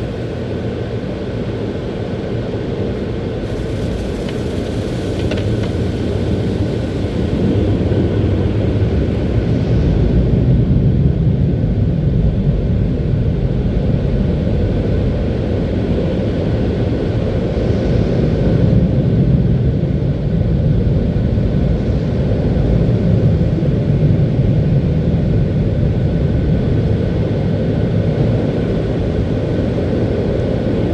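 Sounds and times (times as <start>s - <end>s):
car wash machinery rumbling: 0.0s - 11.4s
faint steady whine: 0.0s - 30.9s.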